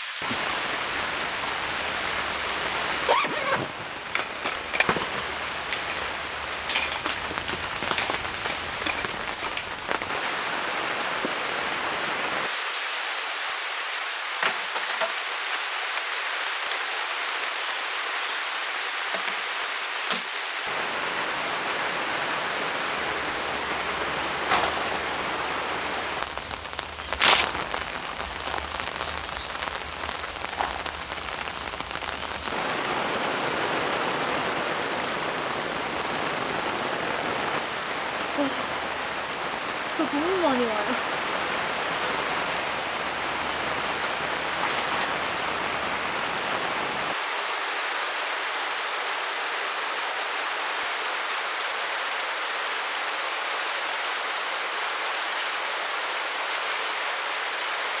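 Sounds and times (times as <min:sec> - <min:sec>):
heavy rain: 0:00.0 - 0:58.0
drops tapping: 0:00.2 - 0:10.4, 0:26.2 - 0:32.6.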